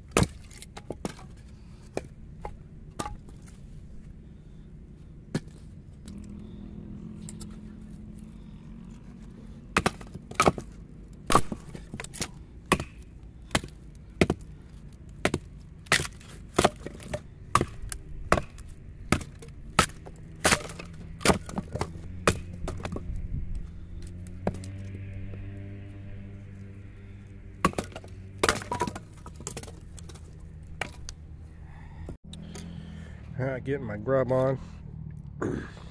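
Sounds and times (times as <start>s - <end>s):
knife chopping wood: 0.0s - 3.5s, 5.3s - 5.7s, 9.7s - 14.5s, 15.1s - 23.2s, 24.1s - 24.8s, 27.6s - 31.1s.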